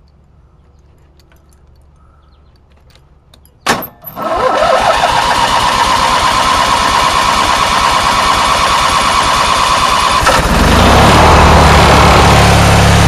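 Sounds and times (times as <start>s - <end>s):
lawn mower engine starting and running: 4.0s - 13.0s.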